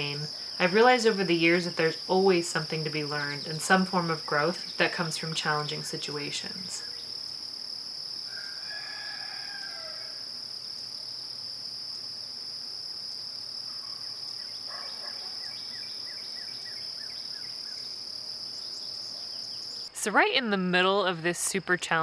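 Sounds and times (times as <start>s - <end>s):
crickets trilling: 0.0s - 22.0s
distant rooster crowing: 8.3s - 10.3s.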